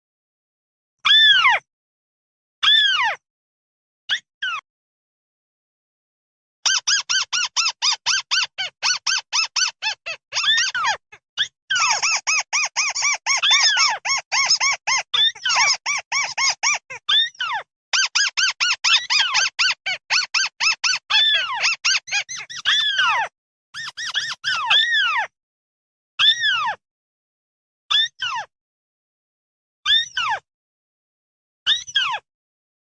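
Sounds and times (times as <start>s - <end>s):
bird flock chirping: 21.6s - 23.2s, 23.8s - 24.7s.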